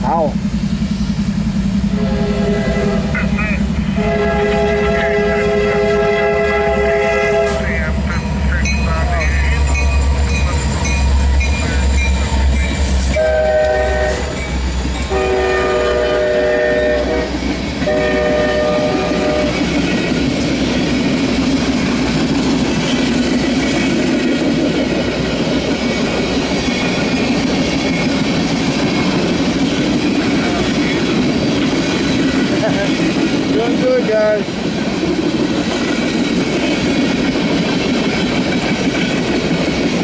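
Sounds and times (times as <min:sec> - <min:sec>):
diesel engine rumble: 0:00.0 - 0:40.0
train rolling rumble and clickety-clack: 0:00.0 - 0:40.0
locomotive horn blasts: 0:01.9 - 0:09.7, 0:12.6 - 0:19.7.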